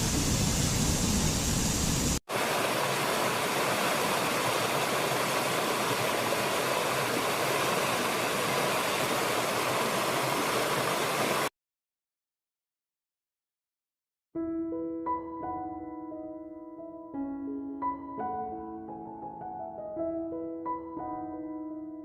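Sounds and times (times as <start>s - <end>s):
running water rushing: 0.0s - 11.5s.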